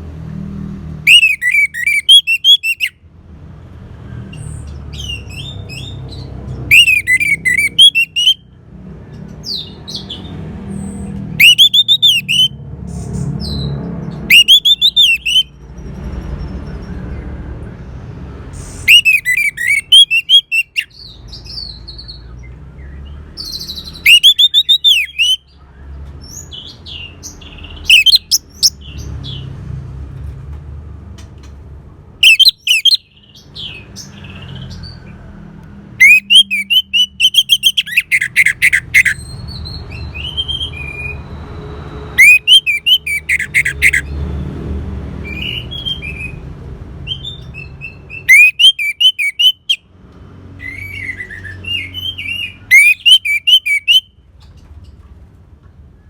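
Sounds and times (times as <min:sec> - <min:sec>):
thrush singing: 0:11.4 - 0:12.5, 0:14.2 - 0:15.6, 0:36.0 - 0:39.2, 0:42.2 - 0:44.0.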